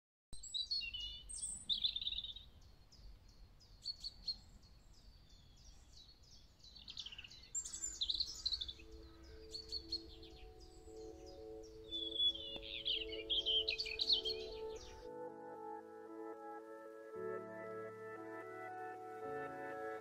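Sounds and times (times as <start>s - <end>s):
songbirds singing: 0.4s - 15.8s
soft music with held notes: 7.0s - 20.0s.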